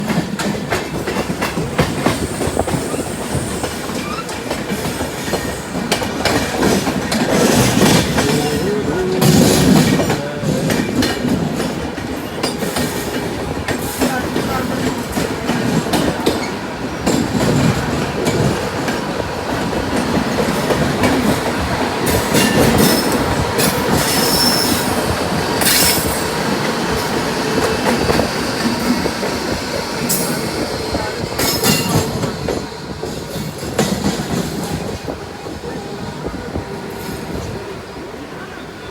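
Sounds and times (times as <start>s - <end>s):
train wheels clattering over rails: 0.0s - 38.1s
train rumble: 0.0s - 38.9s
train wheels squealing: 1.1s - 11.2s, 22.0s - 37.8s.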